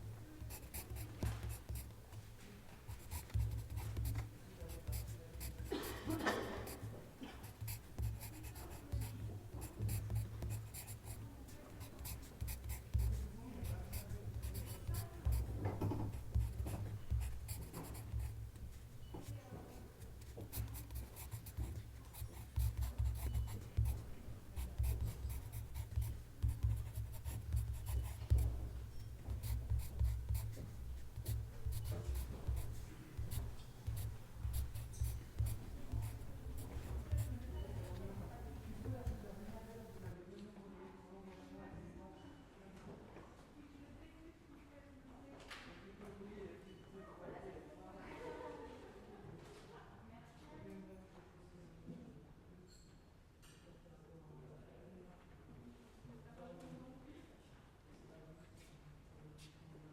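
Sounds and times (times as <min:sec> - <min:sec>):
pen scratching on paper: 0:00.4 - 0:02.2, 0:02.9 - 0:40.1.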